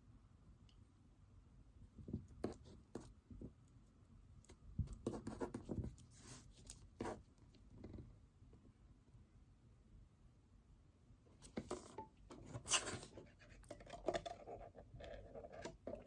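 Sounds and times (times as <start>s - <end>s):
pen scratching on paper: 5.0s - 6.4s.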